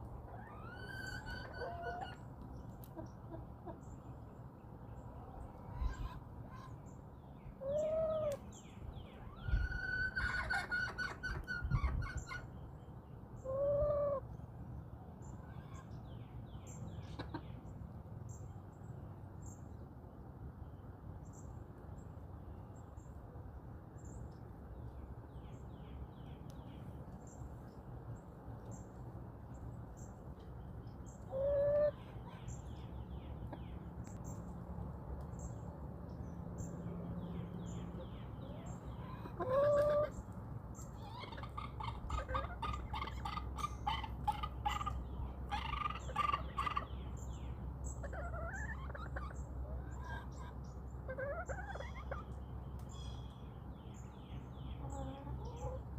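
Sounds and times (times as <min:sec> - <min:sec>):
low background hum: 0:00.0 - 0:55.9
chickens clucking: 0:00.3 - 0:02.2, 0:02.8 - 0:03.8, 0:09.5 - 0:12.5, 0:13.4 - 0:14.2, 0:17.0 - 0:17.6, 0:31.2 - 0:32.6, 0:38.2 - 0:47.0, 0:48.0 - 0:52.8, 0:54.8 - 0:55.9
loud chicken calls: 0:00.3 - 0:02.2, 0:09.4 - 0:12.4, 0:31.3 - 0:32.0, 0:39.0 - 0:40.2, 0:41.0 - 0:46.9.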